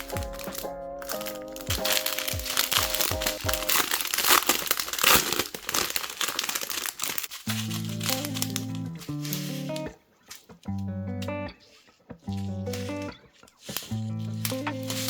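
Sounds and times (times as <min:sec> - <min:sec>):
background music with beat: 0:00.0 - 0:04.2, 0:07.5 - 0:15.0
plastic packaging crinkling: 0:00.0 - 0:10.6, 0:12.3 - 0:15.0.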